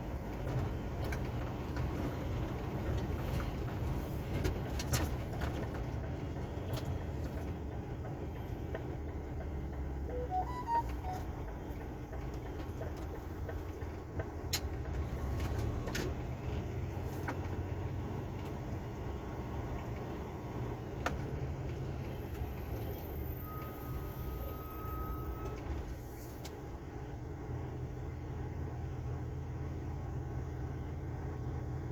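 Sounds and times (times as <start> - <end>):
truck diesel engine rumbling: 0.0 - 25.9
high steady tone: 10.1 - 11.3.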